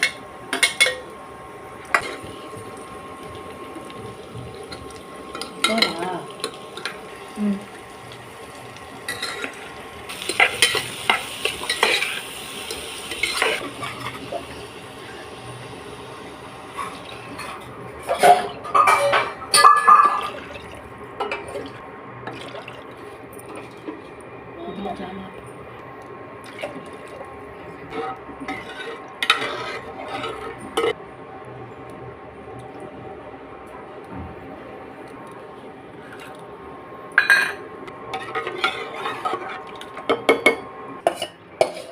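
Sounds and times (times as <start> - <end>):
food sizzling in a pan: 0.0 - 17.8
spoon stirring and scraping in pot: 1.9 - 2.4, 9.1 - 14.4, 27.8 - 31.0, 38.1 - 41.9
spatula scraping and knocking pan: 27.9 - 31.0, 41.1 - 41.9.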